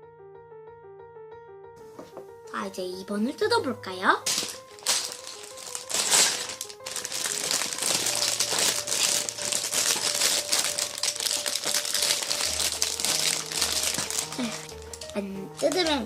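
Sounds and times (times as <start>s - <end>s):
background music: 0.0s - 16.0s
plastic bag crinkling: 4.2s - 16.0s.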